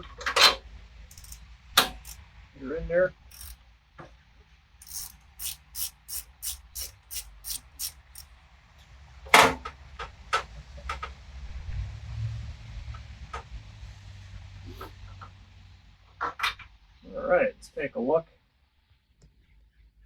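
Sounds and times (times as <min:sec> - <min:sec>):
ratchet wrench clicking: 0:01.1 - 0:02.2, 0:03.3 - 0:03.6, 0:04.8 - 0:08.3.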